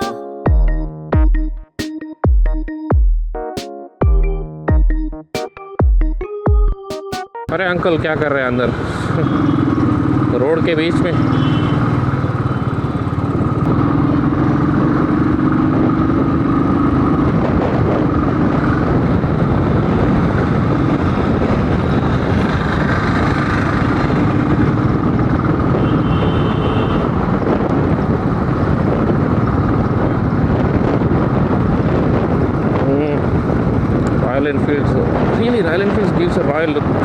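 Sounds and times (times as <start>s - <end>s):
road and traffic noise: 7.5s - 37.0s
motorcycle engine running: 9.1s - 36.6s.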